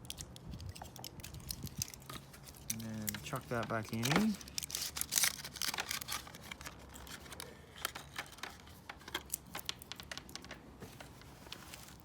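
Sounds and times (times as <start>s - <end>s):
small objects clicking and tapping: 0.0s - 4.7s, 7.9s - 10.6s.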